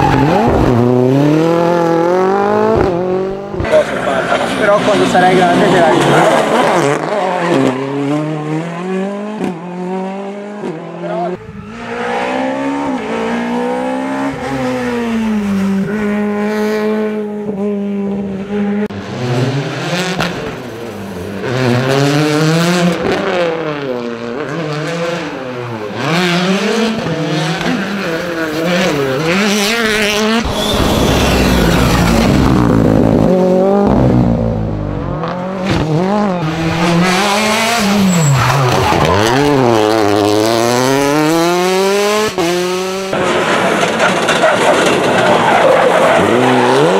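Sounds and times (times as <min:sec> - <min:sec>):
rally car engines revving: 0:00.0 - 0:46.9
tyre squeal: 0:30.4 - 0:32.3, 0:37.8 - 0:39.6.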